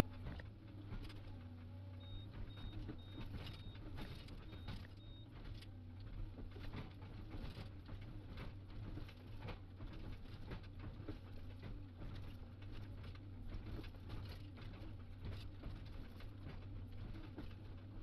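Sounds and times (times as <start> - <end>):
excavator engine humming: 0.0 - 6.1.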